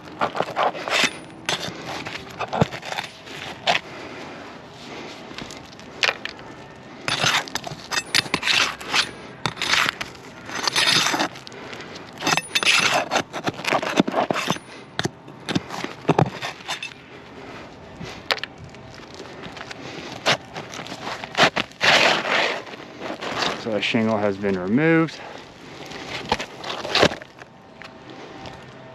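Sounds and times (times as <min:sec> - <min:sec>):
roof shingle being pried loose: 0:00.2 - 0:03.8, 0:12.2 - 0:16.8.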